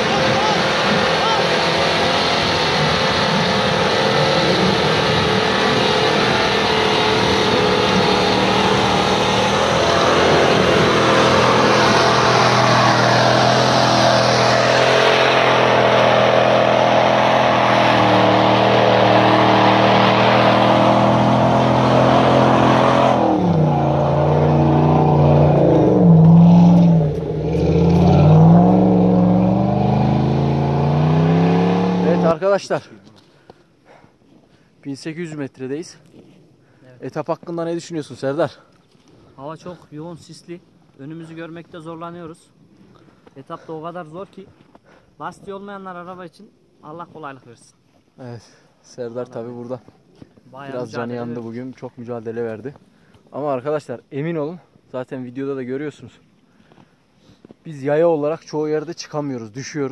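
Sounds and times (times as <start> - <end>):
off-road vehicle engine revving: 0.0 - 32.4.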